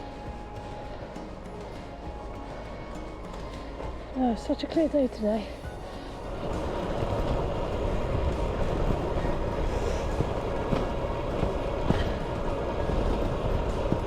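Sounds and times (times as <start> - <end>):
bicycle tyre rumble: 5.4 - 14.0
wind rush on microphone: 5.6 - 14.0.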